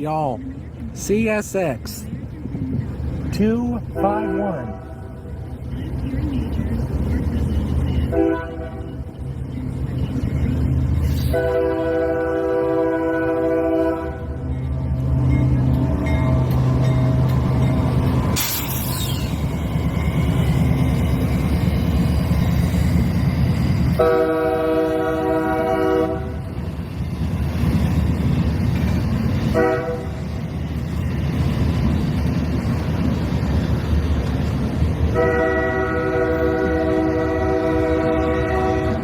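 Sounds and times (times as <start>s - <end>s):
freight train rumbling: 0.0s - 39.0s
train horn blasts: 3.9s - 5.3s, 8.1s - 9.0s, 11.2s - 14.5s, 24.0s - 26.5s, 29.5s - 30.3s, 35.1s - 39.0s.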